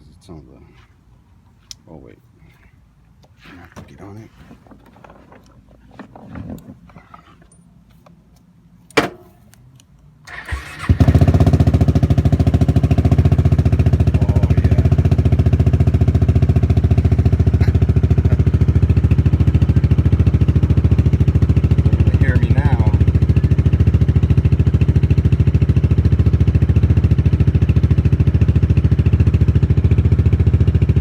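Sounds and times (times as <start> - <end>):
scooter engine cranking: 8.9 - 9.5, 10.3 - 25.7
scooter engine idling: 9.0 - 9.4, 10.3 - 31.0.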